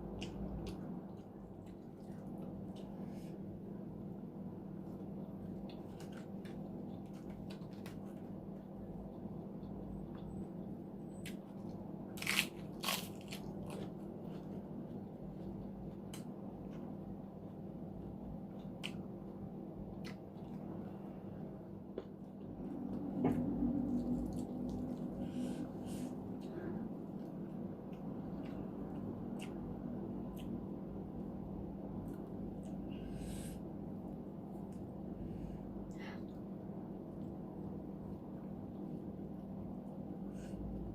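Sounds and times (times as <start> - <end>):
steady low hum: 0.0 - 40.9
chewing and crunching: 11.2 - 19.1, 23.8 - 25.4.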